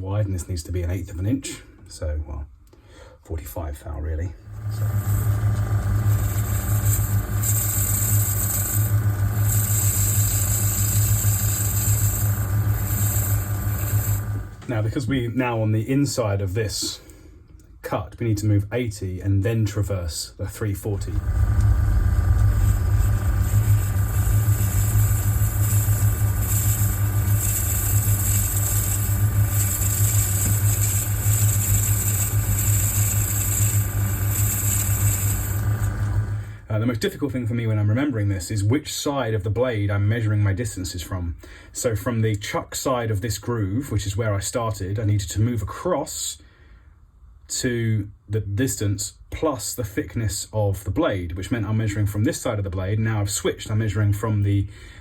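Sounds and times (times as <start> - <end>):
metal lathe humming: 4.5 - 14.7, 20.9 - 36.6
high hiss of tool cutting metal: 6.1 - 14.6, 22.3 - 36.6.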